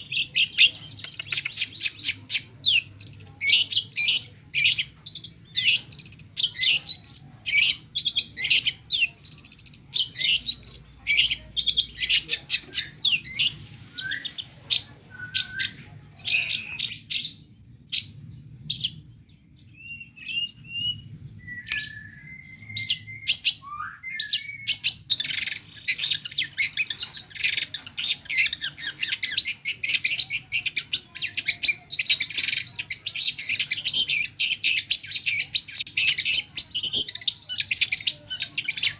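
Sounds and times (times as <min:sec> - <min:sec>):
sliding bird whistles: 0:13.4 - 0:14.5
shrike song with mimicked calls: 0:22.6 - 0:38.9.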